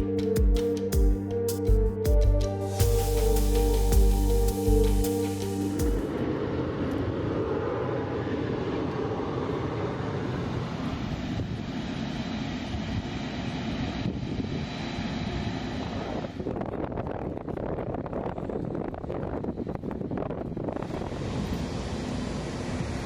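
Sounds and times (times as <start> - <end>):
background music: 0.0 - 6.2
aircraft engines rushing: 2.6 - 17.8, 18.6 - 23.0.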